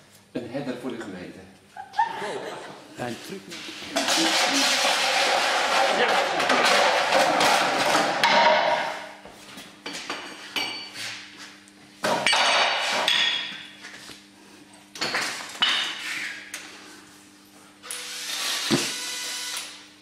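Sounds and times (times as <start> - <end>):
rough scraping noise: 3.6 - 7.5.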